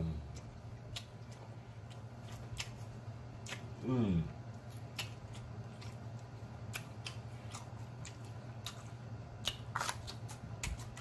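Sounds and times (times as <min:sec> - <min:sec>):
faint low hum: 0:00.0 - 0:11.0
crisp crunches of biting pepper: 0:09.4 - 0:11.0.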